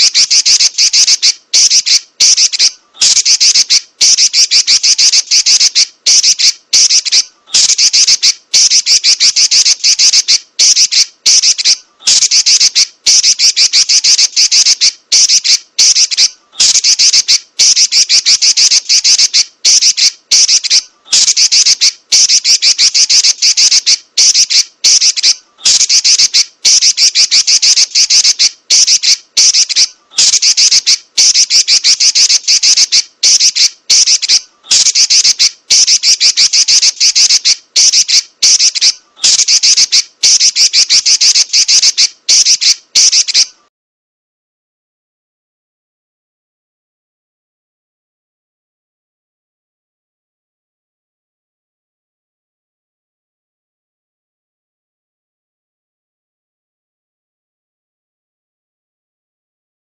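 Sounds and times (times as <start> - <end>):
bird scratchy chatter: 0.0 - 43.6.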